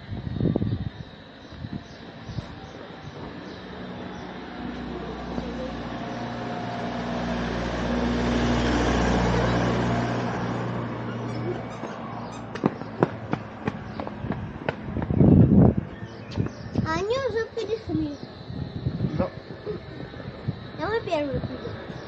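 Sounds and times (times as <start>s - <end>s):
car passing by: 3.3s - 15.8s.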